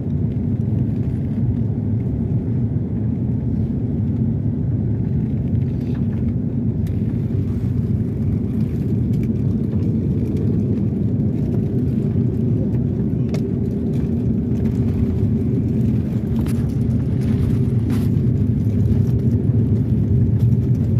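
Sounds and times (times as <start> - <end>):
airliner cabin drone: 0.0 - 20.9.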